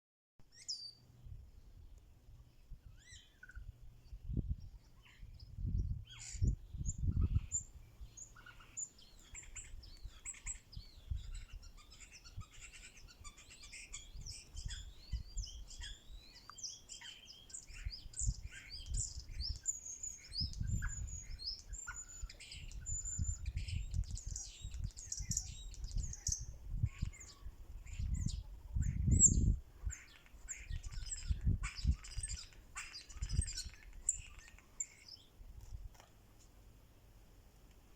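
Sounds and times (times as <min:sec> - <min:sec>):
birds chirping and trilling: 0:00.5 - 0:01.3, 0:02.5 - 0:35.4.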